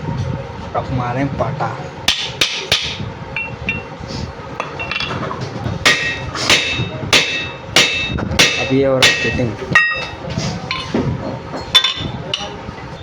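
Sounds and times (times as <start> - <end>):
hammer striking metal: 2.1 - 3.8, 5.8 - 11.0.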